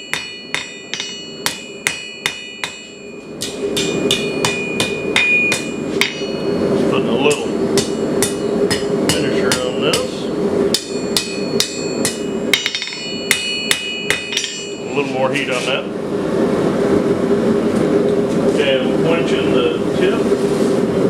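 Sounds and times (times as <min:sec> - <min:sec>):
hammer striking steel on anvil: 0:00.0 - 0:06.6, 0:07.3 - 0:15.0
steady rushing noise: 0:00.1 - 0:21.0.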